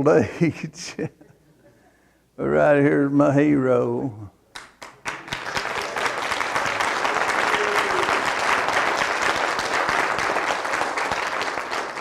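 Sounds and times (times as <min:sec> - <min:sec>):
congregation applauding: 0:04.6 - 0:12.0.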